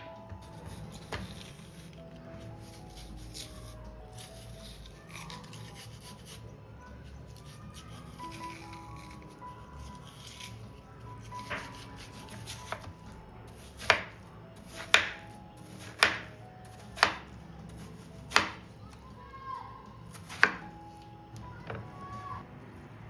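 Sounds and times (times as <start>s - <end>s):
knife chopping on cutting board: 0.3s - 1.8s, 11.3s - 12.9s, 13.5s - 18.7s, 20.2s - 20.6s.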